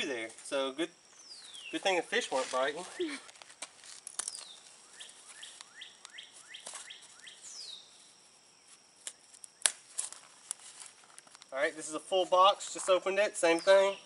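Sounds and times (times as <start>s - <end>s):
songbird chirping: 0.8s - 3.1s, 4.1s - 9.8s, 11.2s - 14.0s.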